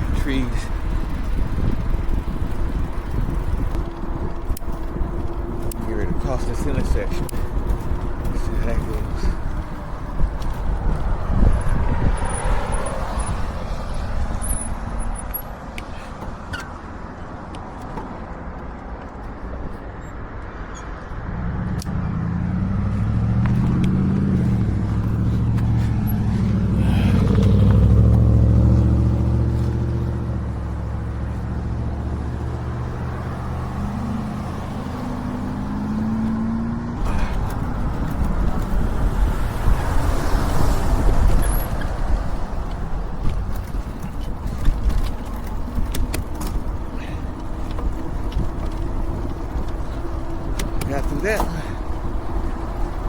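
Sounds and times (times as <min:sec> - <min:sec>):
car engine running: 0:00.0 - 0:16.0, 0:21.4 - 0:53.0
low rushing rumble: 0:21.3 - 0:31.4.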